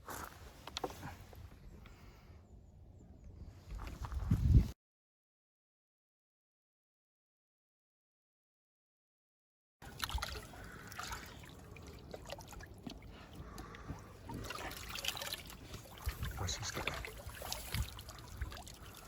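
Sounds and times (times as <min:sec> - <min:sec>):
water trickling and splashing: 0:09.8 - 0:19.0.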